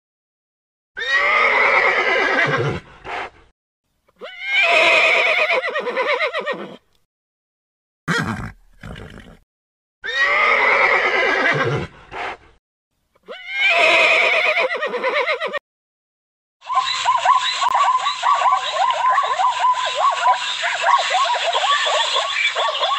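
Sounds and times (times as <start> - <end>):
horse whinnying: 1.0 - 2.8, 4.2 - 6.9, 8.1 - 9.4, 10.0 - 11.9, 13.3 - 15.6.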